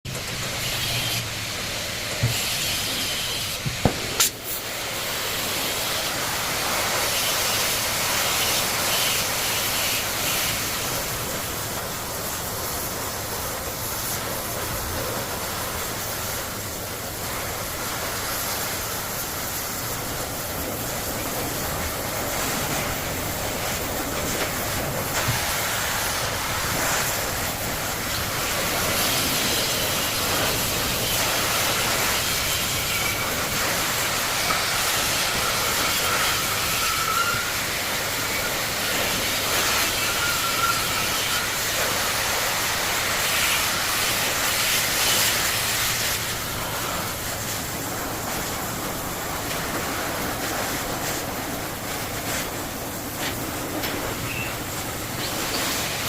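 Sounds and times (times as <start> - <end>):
loud steady hissing: 0.1 - 56.0
sharp knocks on metal: 3.6 - 4.4.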